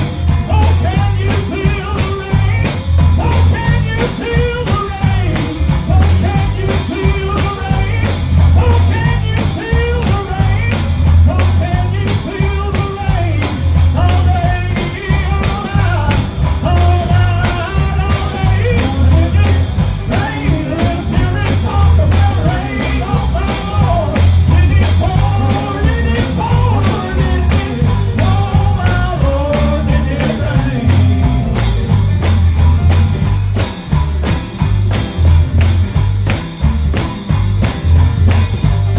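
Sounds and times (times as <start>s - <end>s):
gospel band with singing: 0.0s - 38.9s.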